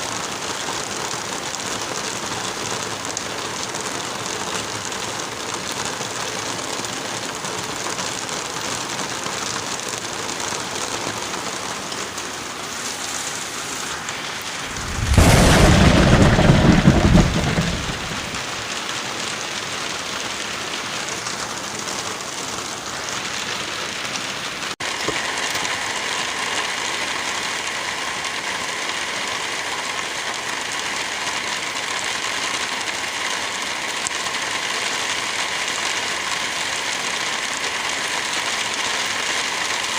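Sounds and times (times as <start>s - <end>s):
steady rain: 0.0s - 39.9s
thunderclap rumbling: 14.4s - 18.6s.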